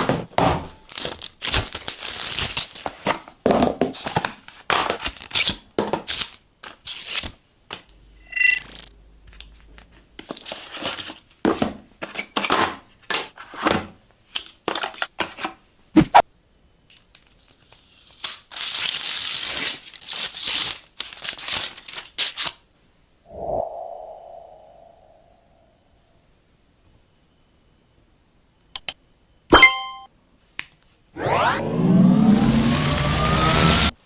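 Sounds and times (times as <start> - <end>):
packaging rustling and tearing: 0.9 - 3.0
short ringing tone: 8.2 - 8.9, 29.5 - 30.1.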